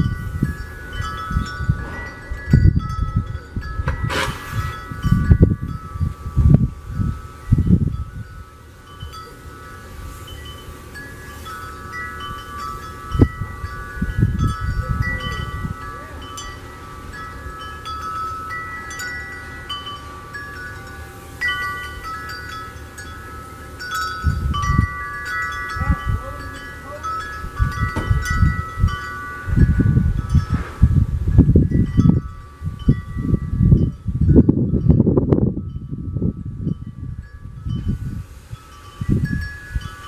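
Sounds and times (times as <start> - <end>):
low rumble: 0.0 - 8.6
wind chimes ringing: 0.0 - 40.0.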